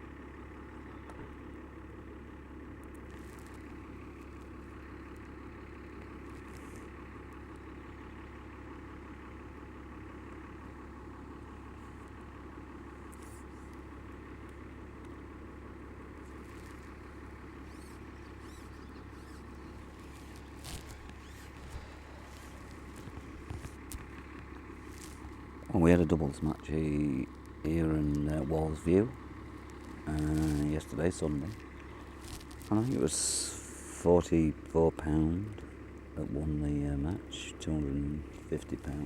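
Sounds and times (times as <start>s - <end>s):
mechanical motor hum: 0.0s - 39.0s
faint clicks: 16.2s - 25.7s.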